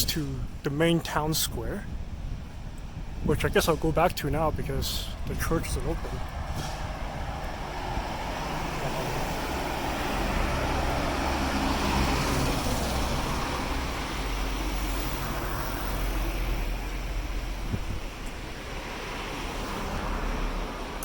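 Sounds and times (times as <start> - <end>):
low traffic rumble: 0.0 - 21.0
vehicle passing: 4.9 - 21.0.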